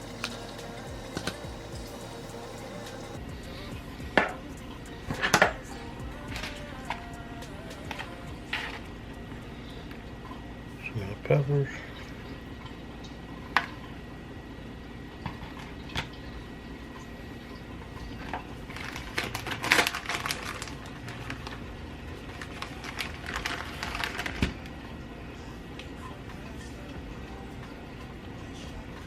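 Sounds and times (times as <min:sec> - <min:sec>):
crinkly rustling and clicking: 0:18.1 - 0:24.8.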